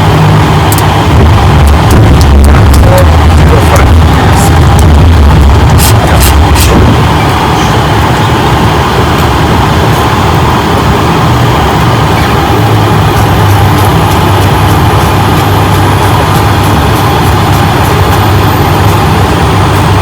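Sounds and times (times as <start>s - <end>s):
air rushing: 0.0s - 11.0s
jet engines running: 0.0s - 20.0s
low drone: 0.0s - 20.0s.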